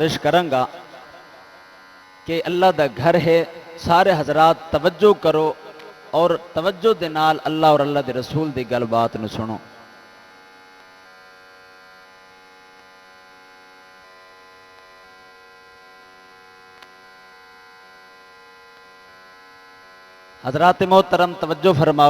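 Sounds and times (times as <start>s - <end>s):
electrical mains hum: 0.0s - 22.0s
faint click: 16.8s - 17.0s.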